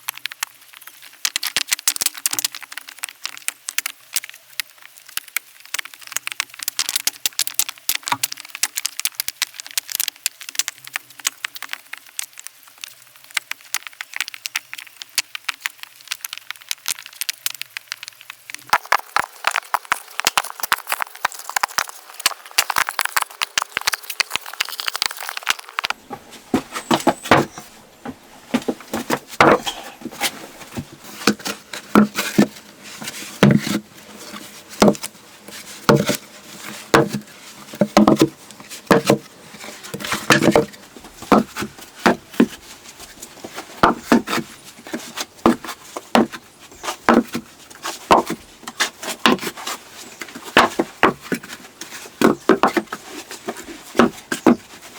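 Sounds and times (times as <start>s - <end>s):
fine crackling or scraping: 18.6s - 40.8s.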